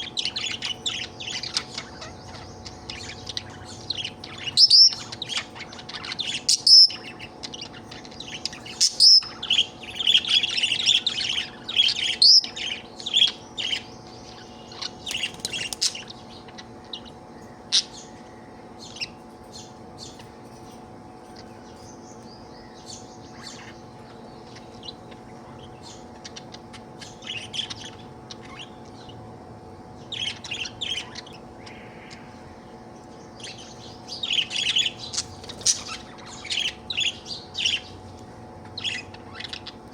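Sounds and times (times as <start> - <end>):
budgerigar chirping and chattering: 0.0 - 17.1, 22.9 - 29.3, 30.0 - 32.3, 33.3 - 38.0, 38.6 - 39.9
faint steady hum: 0.0 - 39.9.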